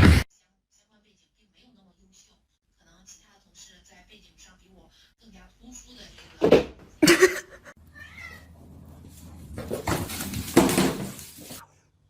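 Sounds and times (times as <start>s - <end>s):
cat meowing: 7.8s - 8.6s.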